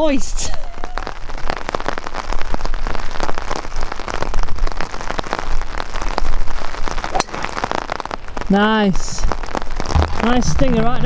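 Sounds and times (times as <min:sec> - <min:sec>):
heavy rain pattering: 0:00.0 - 0:11.0
golf club striking ball: 0:07.1 - 0:07.6.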